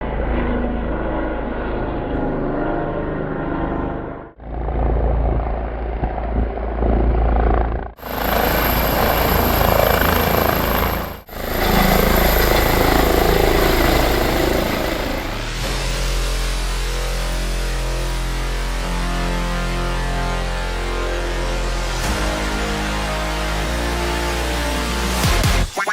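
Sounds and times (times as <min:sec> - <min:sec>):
helicopter rotor and engines: 0:00.0 - 0:19.4, 0:20.0 - 0:25.8
high steady whine: 0:04.4 - 0:16.1.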